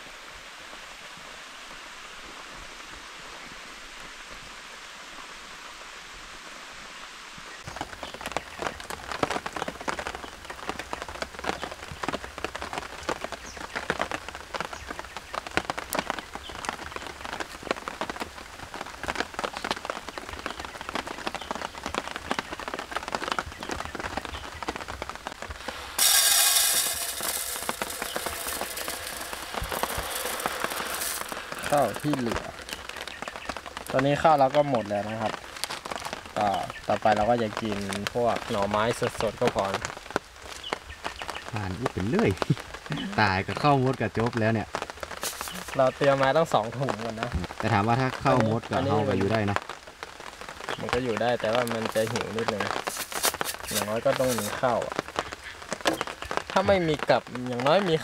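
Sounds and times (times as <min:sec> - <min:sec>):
rain drops pattering: 0:00.0 - 0:58.0
rain falling: 0:00.0 - 0:58.0
loud rushing hiss: 0:25.5 - 0:32.6.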